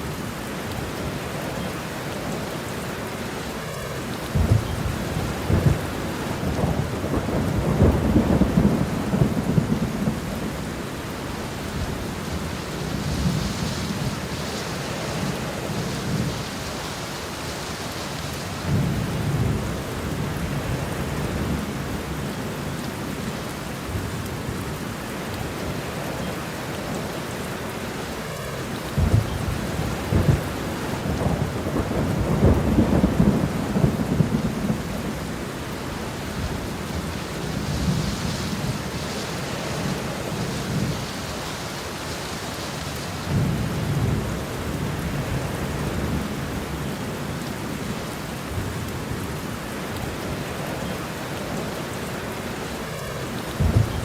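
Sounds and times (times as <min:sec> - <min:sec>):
steady rain: 0:00.0 - 0:54.0
rolling thunder: 0:04.3 - 0:17.3, 0:28.9 - 0:41.2, 0:53.0 - 0:54.0
sharp thunder cracks: 0:29.0 - 0:35.0, 0:53.6 - 0:54.0.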